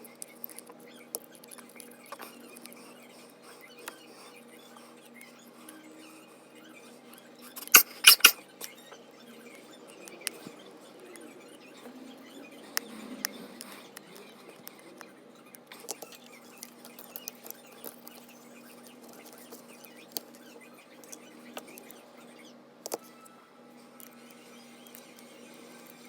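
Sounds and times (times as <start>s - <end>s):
small tools clicking and scraping: 7.5s - 8.8s.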